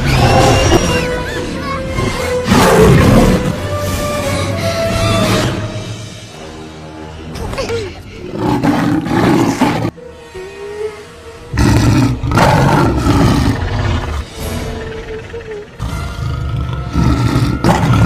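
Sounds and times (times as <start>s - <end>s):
film music: 0.0s - 18.0s
dinosaur roaring: 8.3s - 10.0s, 11.5s - 14.3s, 15.7s - 18.0s.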